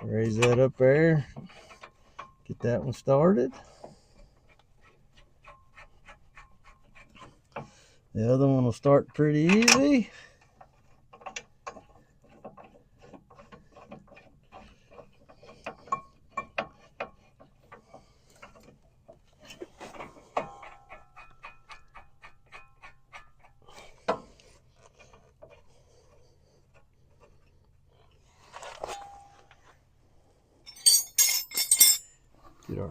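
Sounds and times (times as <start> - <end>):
metallic clinks of tools: 30.7 - 32.2.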